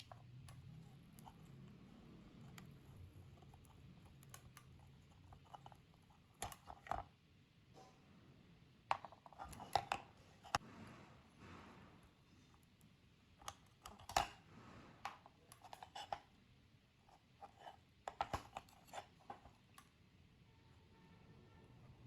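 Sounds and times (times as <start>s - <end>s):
small hard parts clicking and tapping: 12.6s - 14.4s.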